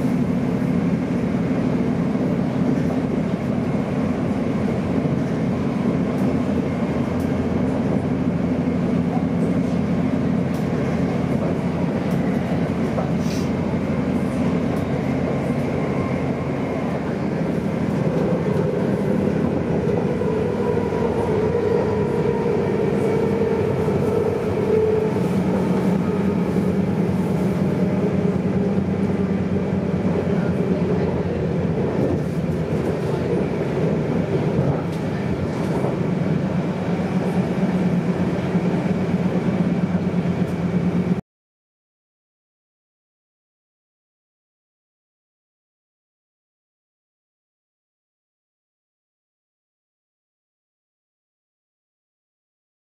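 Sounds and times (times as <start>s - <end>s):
train motor hum: 0.0s - 41.2s
train wheels rumbling on track: 0.0s - 41.2s.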